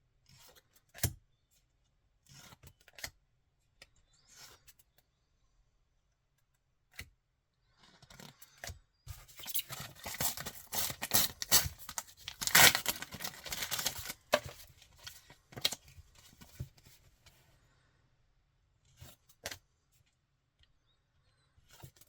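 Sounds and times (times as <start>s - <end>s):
wrapper ripping and crinkling: 9.4s - 15.8s.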